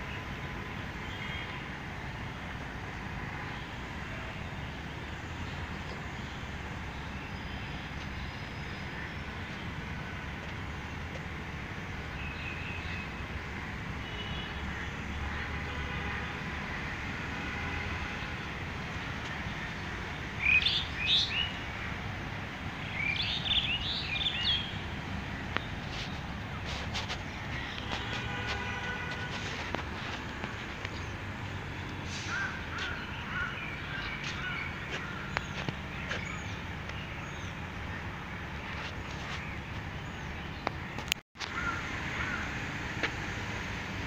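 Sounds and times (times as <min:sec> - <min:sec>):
street traffic rumble: 0:00.0 - 0:44.0
bird chirping: 0:20.4 - 0:21.6, 0:22.8 - 0:26.3.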